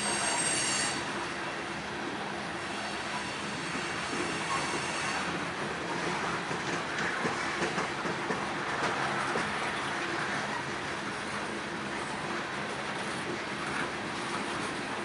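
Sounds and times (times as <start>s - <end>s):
train wheels clicking over rail joints: 2.7s - 10.8s.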